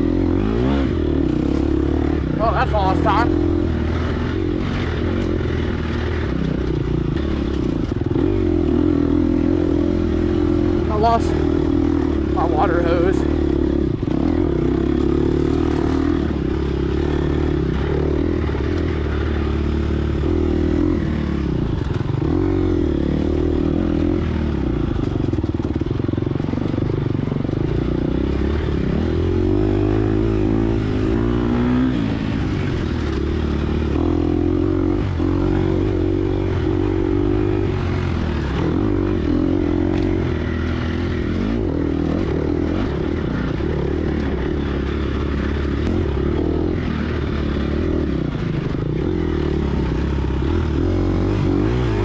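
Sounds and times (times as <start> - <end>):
dirt bike engine revving: 0.1 - 4.9, 7.2 - 20.9, 49.2 - 52.0.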